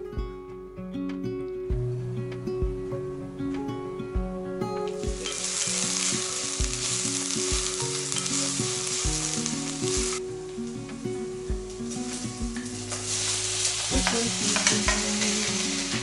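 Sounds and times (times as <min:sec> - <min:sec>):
soft background music: 0:00.0 - 0:16.0
onions sizzling in hot oil: 0:04.8 - 0:16.0.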